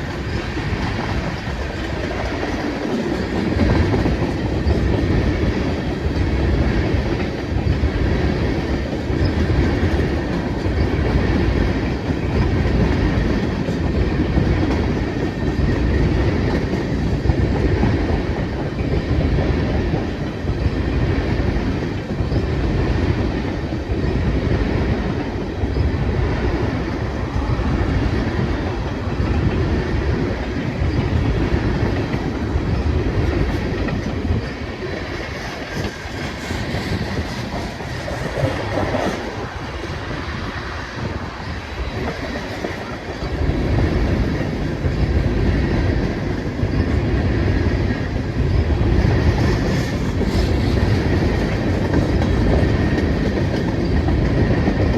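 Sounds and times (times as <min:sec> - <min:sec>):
freight train rumbling: 0:00.0 - 0:54.9
wheels clacking over rail joints: 0:28.0 - 0:45.2.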